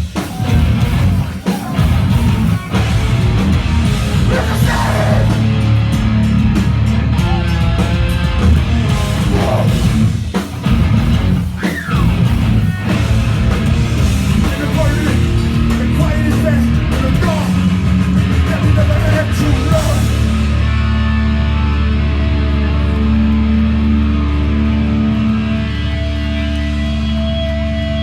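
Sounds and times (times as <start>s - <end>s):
punk band playing live: 0.0s - 28.0s.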